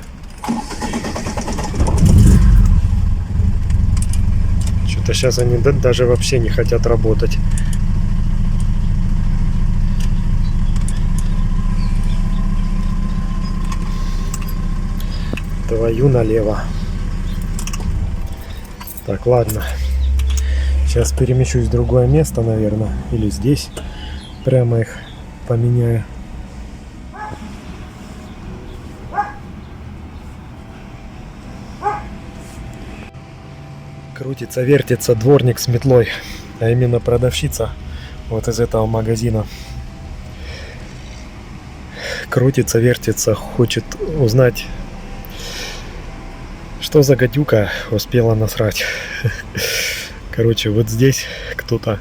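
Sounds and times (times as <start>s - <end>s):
car engine idling: 0.0s - 52.0s
steady low rumble: 1.4s - 52.0s
dog barking: 27.1s - 27.5s, 29.1s - 29.4s, 31.8s - 32.1s.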